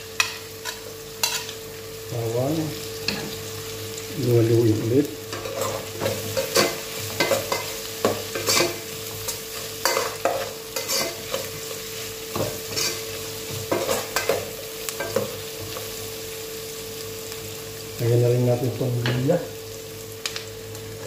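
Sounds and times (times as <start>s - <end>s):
onions sizzling in hot oil: 0.0s - 21.0s
metal spoon scraping a pot: 8.3s - 8.8s, 9.9s - 11.4s.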